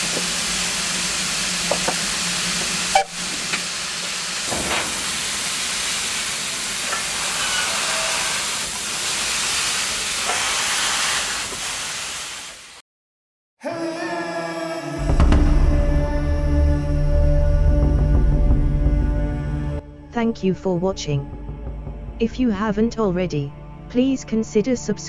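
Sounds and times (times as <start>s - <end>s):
steam locomotive hissing: 0.0s - 12.8s
music: 13.6s - 25.0s.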